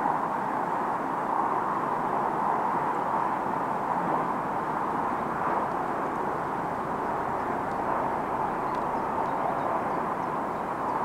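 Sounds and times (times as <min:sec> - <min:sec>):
distant train roar: 0:03.4 - 0:11.0.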